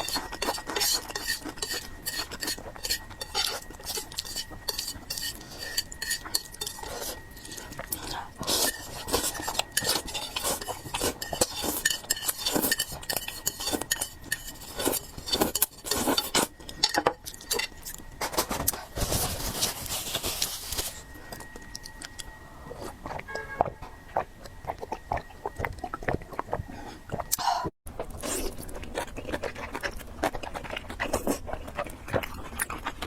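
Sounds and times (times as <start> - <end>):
utensils clinking against a dish: 0.0 - 21.9.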